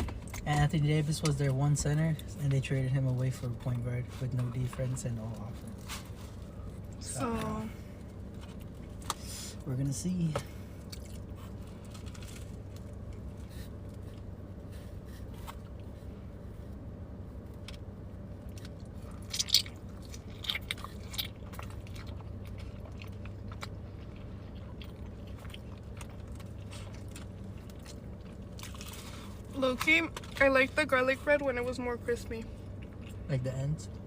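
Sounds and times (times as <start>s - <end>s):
low hum: 0.0s - 34.0s
person chewing food: 10.7s - 16.0s, 18.4s - 29.6s, 32.6s - 33.3s.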